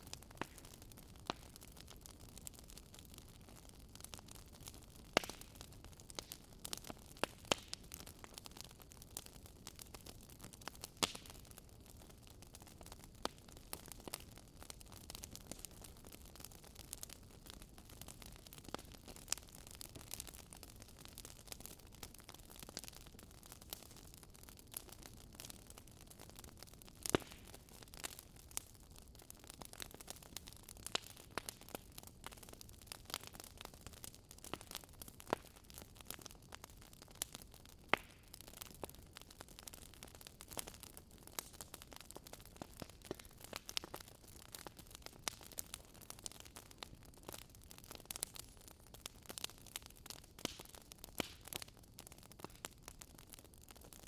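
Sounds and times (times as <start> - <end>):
campfire crackling with pops: 0.0 - 54.0.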